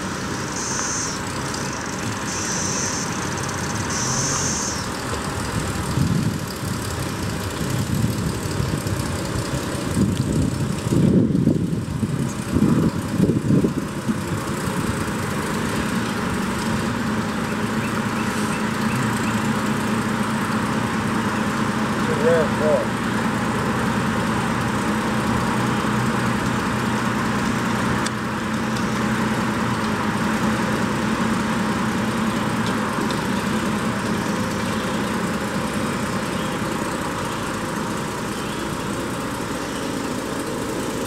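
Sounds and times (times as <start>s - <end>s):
pulsing high buzz: 0.0s - 5.2s
car engine running: 0.0s - 41.0s.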